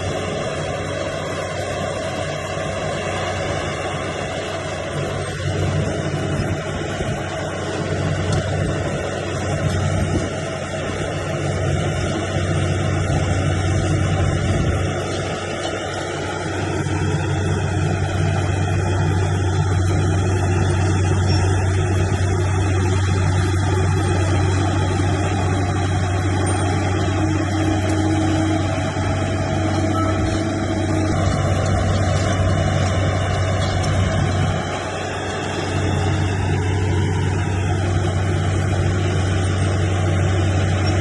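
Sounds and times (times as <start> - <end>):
heavy diesel engine under load: 0.0 - 41.0.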